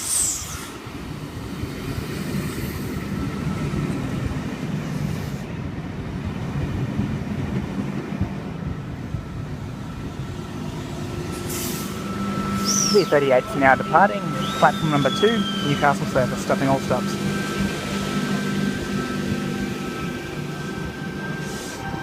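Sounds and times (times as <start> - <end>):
electric train low rumble: 0.0 - 22.0
thin steady whine: 9.2 - 22.0.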